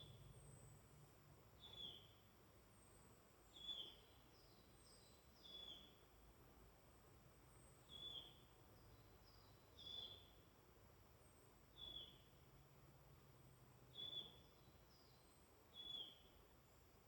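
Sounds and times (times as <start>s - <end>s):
faint high bird chirps: 1.6s - 2.2s, 2.8s - 6.0s, 7.8s - 10.4s, 11.7s - 12.3s, 13.9s - 16.8s.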